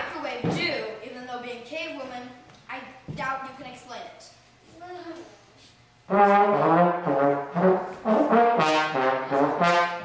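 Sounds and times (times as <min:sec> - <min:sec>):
trombone playing low notes: 0:06.1 - 0:10.0.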